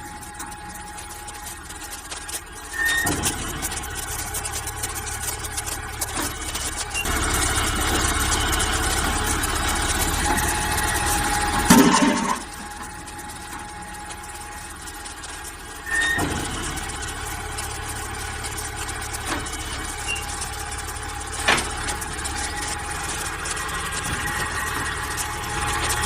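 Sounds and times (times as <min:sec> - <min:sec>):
backhoe loader engine running: 0:00.0 - 0:26.0
brief squeal: 0:02.7 - 0:03.3, 0:15.8 - 0:16.4, 0:20.0 - 0:20.4.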